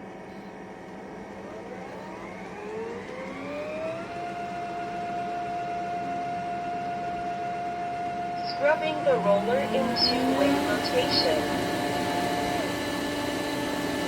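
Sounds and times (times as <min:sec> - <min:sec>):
vacuum motor whine: 0:00.0 - 0:14.0
low hum: 0:08.2 - 0:13.9.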